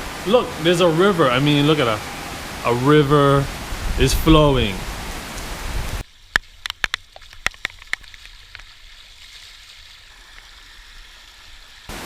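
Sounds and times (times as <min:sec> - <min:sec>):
rainwater rushing: 0:00.0 - 0:12.0
sharp dripping clicks: 0:06.2 - 0:08.8.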